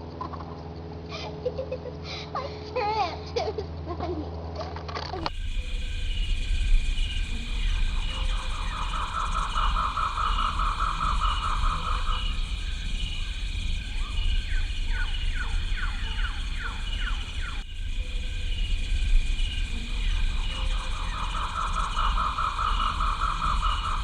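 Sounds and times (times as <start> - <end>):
low hum: 3.5 - 24.0
insect shrilling with pulsing note: 5.3 - 24.0
bird trilling rapidly: 6.3 - 17.6, 19.1 - 24.0
short falling whistled bird calls: 6.6 - 17.6.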